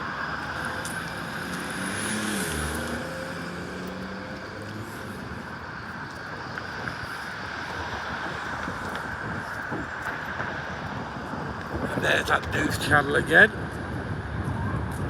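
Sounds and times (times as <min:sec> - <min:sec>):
city traffic: 0:00.0 - 0:15.0
vehicle engine hum: 0:00.0 - 0:15.0
wind on microphone: 0:04.3 - 0:15.0.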